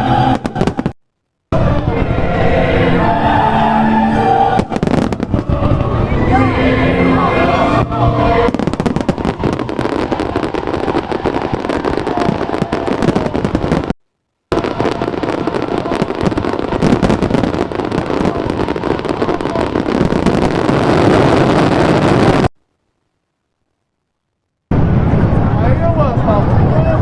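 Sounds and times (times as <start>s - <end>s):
fireworks crackling and popping: 0.2s - 2.0s, 4.6s - 6.2s, 7.6s - 22.8s.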